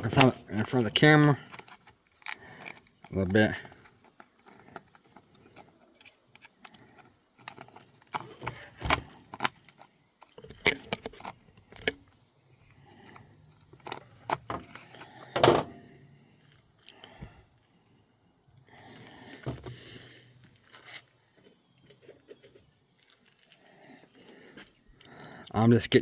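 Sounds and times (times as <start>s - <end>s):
metal parts and tools clinking: 0.0s - 12.2s.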